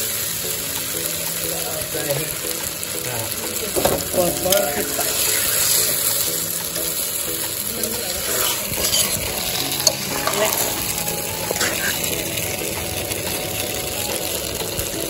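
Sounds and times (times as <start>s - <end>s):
chicken sizzling in a wok: 0.0s - 15.0s
metal ladle scraping a pan: 7.8s - 12.5s.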